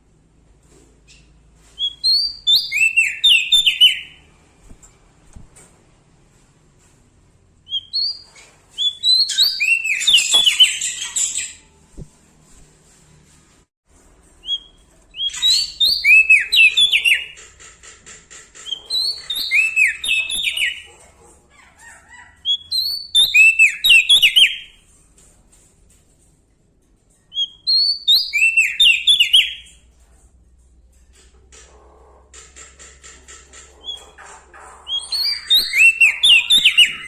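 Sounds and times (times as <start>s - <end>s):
bird whistling song: 1.1s - 4.3s, 7.7s - 11.7s, 14.4s - 17.4s, 18.6s - 20.9s, 22.5s - 24.8s, 27.3s - 29.8s, 34.9s - 37.0s.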